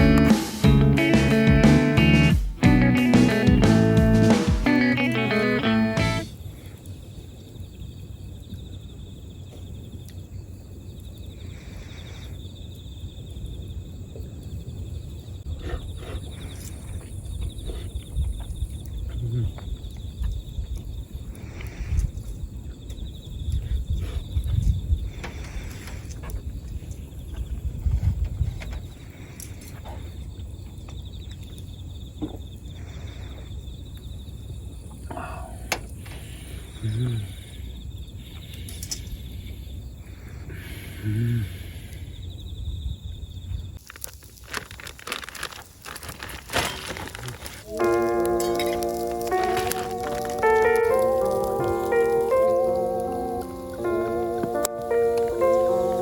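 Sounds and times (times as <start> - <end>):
insects trilling: 3.0 - 56.0
insect trilling: 47.0 - 56.0.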